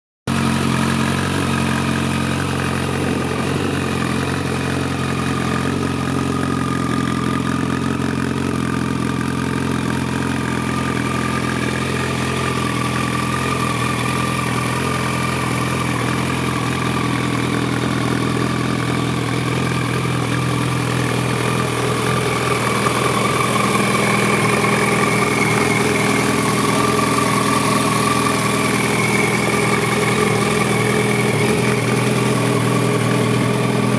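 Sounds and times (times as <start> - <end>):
motorcycle engine idling: 0.3 - 33.9.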